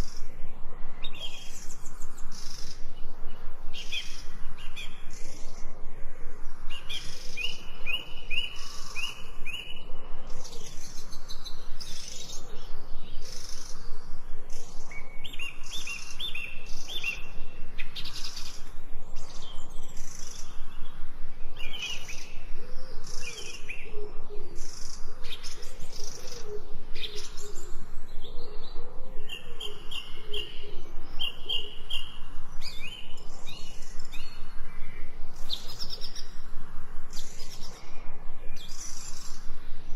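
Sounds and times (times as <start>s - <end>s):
birds chirping and singing: 0.0s - 5.8s, 6.6s - 39.9s
lower wavering bird calls: 0.0s - 39.9s.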